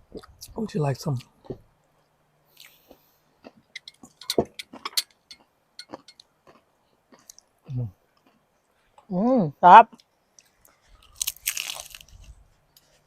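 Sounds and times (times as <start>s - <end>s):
crunchy taco shells being chewed: 2.5s - 8.7s, 9.9s - 13.0s.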